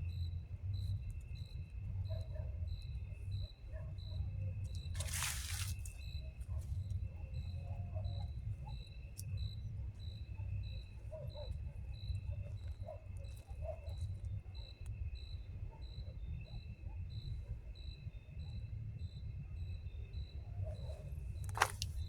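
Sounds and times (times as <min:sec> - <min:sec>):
continuous insect trill: 0:00.0 - 0:22.0
cricket chirping: 0:00.0 - 0:22.0
rustling: 0:04.9 - 0:06.0, 0:21.5 - 0:22.0.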